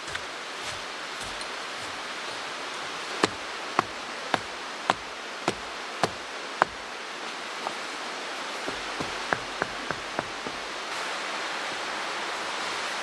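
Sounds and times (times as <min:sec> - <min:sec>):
mountain stream rushing: 0:00.0 - 0:13.0
sharp knocks: 0:03.2 - 0:06.8, 0:08.7 - 0:10.7.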